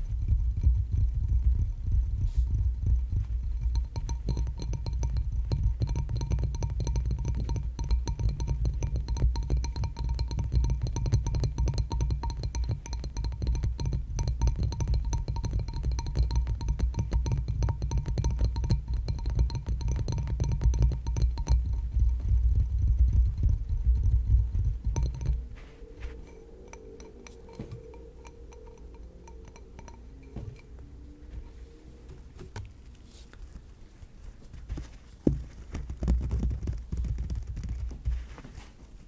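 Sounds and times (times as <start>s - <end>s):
low rumble: 0.0s - 5.9s, 21.0s - 33.0s
rapid tapping on hard object: 0.0s - 30.7s, 34.4s - 38.7s.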